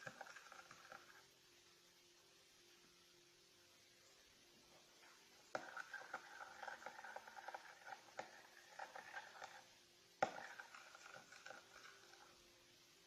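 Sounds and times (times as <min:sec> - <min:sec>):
utensil stirring in a bowl: 0:00.0 - 0:01.3, 0:04.7 - 0:12.6.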